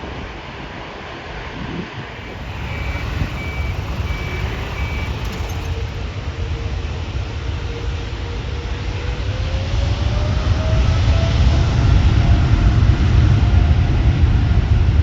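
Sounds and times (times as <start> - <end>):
reversing beeper: 2.2 - 6.0.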